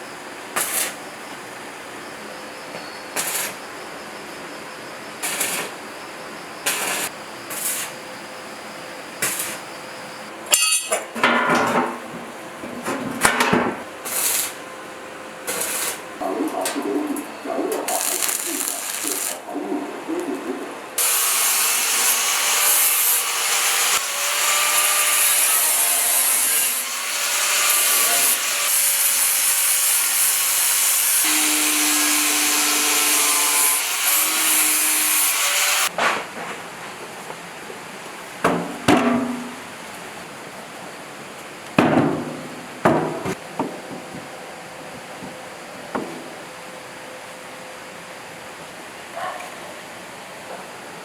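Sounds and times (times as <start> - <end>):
power tool grinding: 17.9 - 19.4, 21.0 - 35.9.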